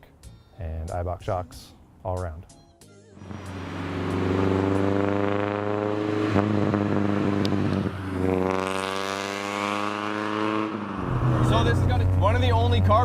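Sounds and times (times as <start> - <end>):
car engine accelerating: 3.2 - 13.0.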